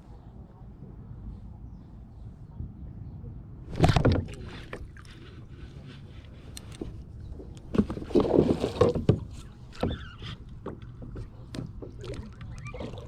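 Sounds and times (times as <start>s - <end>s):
water splashing: 7.7s - 13.0s.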